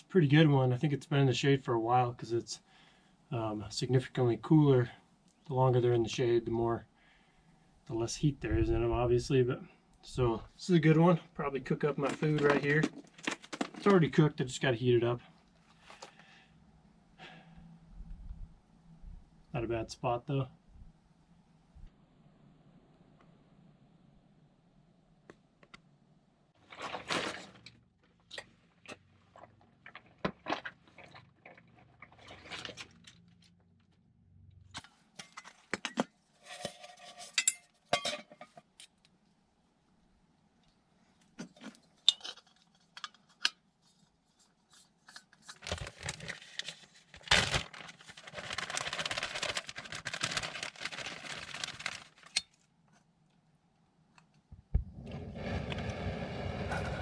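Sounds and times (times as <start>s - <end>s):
metal cookware clinking: 36.5s - 38.6s.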